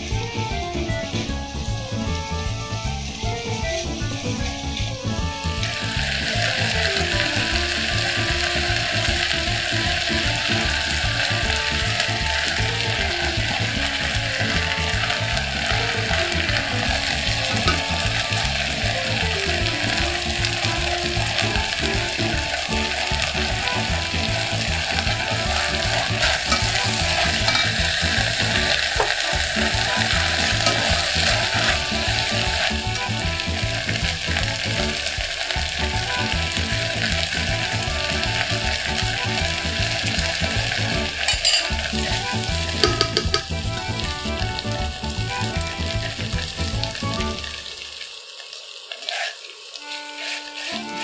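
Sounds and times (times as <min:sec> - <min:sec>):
food sizzling in a pot: 0:00.0 - 0:51.0
spatula stirring: 0:09.6 - 0:35.8, 0:36.4 - 0:43.6, 0:48.9 - 0:51.0.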